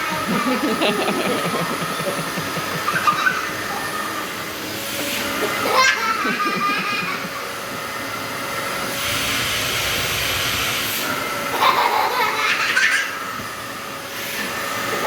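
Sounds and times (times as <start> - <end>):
young child laughing: 0.0 - 3.8, 5.5 - 7.6, 11.5 - 13.3
vacuum cleaner running: 0.0 - 15.0.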